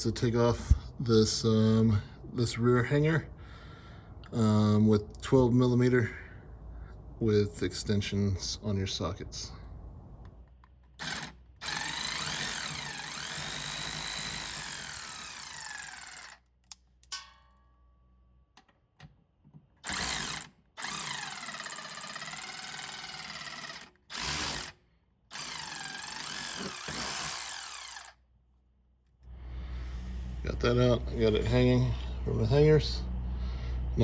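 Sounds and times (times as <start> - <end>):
power tool motor whine: 11.0 - 16.4, 19.8 - 28.2.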